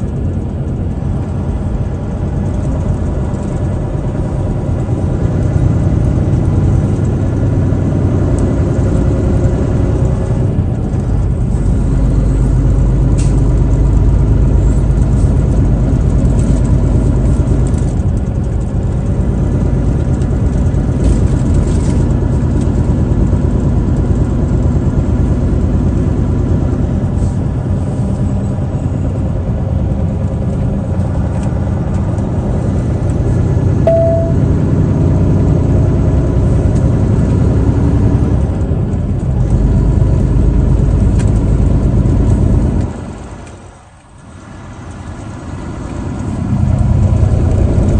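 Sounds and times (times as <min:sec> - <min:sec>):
road noise: 0:00.0 - 0:47.9
truck engine running: 0:00.0 - 0:47.9
short high tone: 0:33.9 - 0:34.8.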